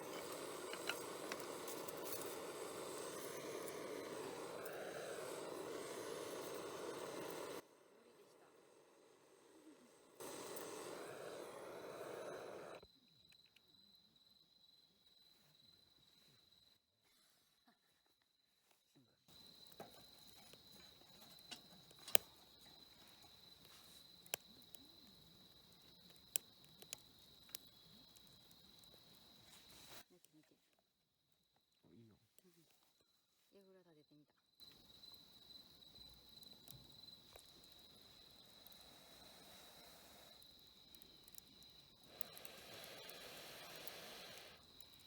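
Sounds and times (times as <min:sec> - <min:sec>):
campfire rushing noise: 0:00.0 - 0:12.8, 0:19.3 - 0:30.0, 0:34.6 - 0:45.0
insects trilling: 0:00.0 - 0:16.6, 0:19.3 - 0:30.0, 0:34.0 - 0:45.0
faint fire crackles: 0:00.0 - 0:45.0.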